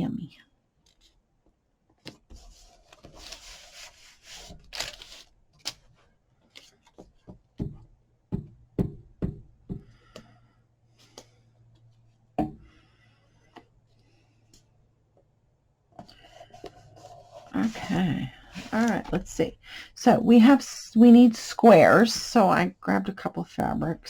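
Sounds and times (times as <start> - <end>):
rustling of craft supplies: 0.8 - 8.0, 15.9 - 20.6
items knocking on tabletop: 7.0 - 9.9.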